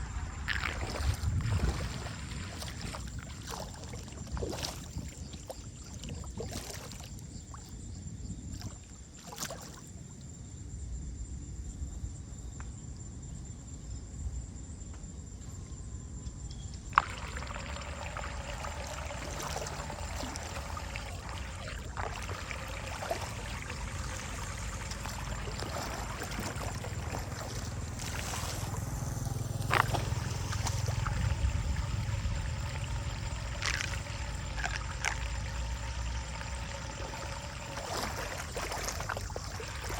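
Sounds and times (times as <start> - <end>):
water trickling and pouring: 0.4 - 7.1, 16.9 - 39.9
low rumble: 24.6 - 37.9.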